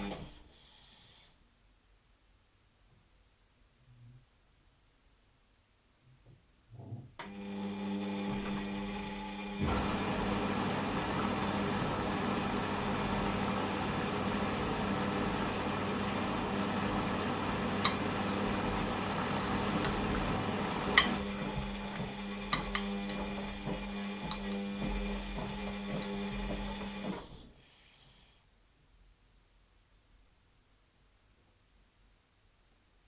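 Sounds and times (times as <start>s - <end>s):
washing machine hum: 7.2s - 27.6s
water rushing in: 9.7s - 24.2s.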